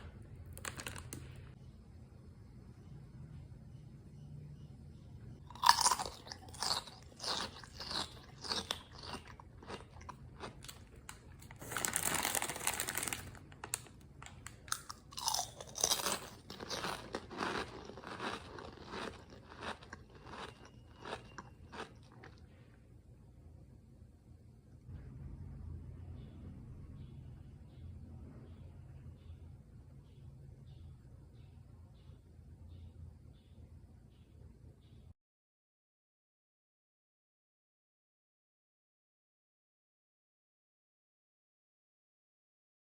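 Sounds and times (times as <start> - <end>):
crisp bite into chips: 5.5 - 22.4
crunchy chewing: 5.5 - 22.6.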